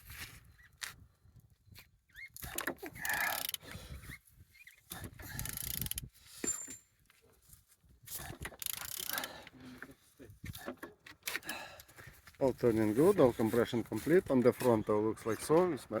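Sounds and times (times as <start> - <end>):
engine crankshaft turned by wrench: 4.9 - 6.1, 8.2 - 9.4.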